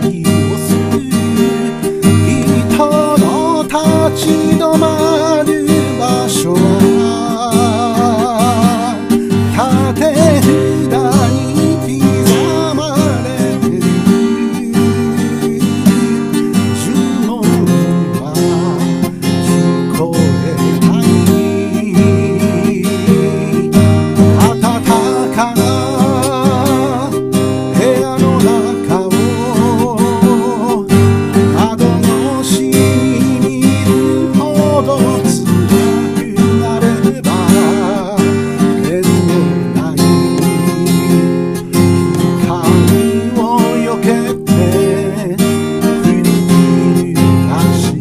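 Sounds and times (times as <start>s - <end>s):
strummed acoustic guitar: 0.0s - 48.0s.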